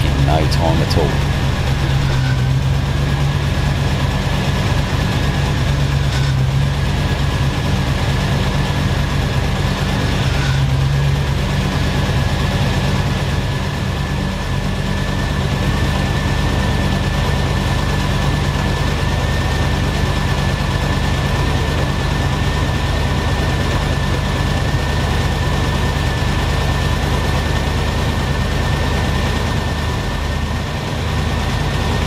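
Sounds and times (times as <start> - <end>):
faint steady whine: 0.0 - 2.7
car engine idling: 0.0 - 3.0.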